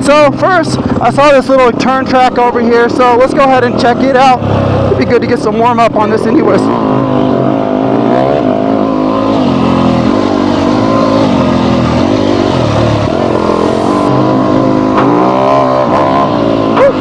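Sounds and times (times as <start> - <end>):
dirt bike engine revving: 10.2 - 14.2.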